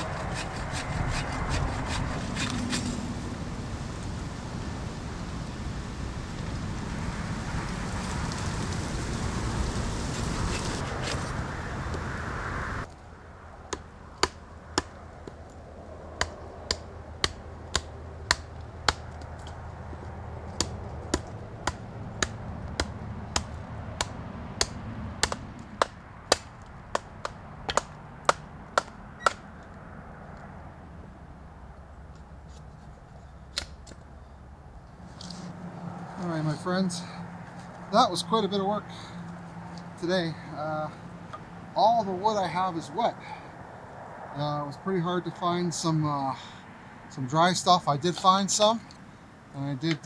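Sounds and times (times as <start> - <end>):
steady hiss: 2.4 - 12.9
firewood chopping knocks: 20.6 - 29.4.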